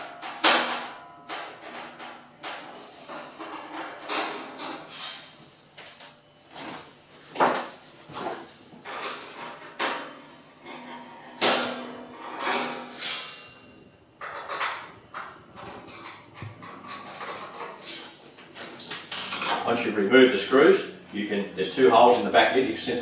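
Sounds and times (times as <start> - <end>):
screwdriver and screws clinking on metal: 14.2 - 19.7.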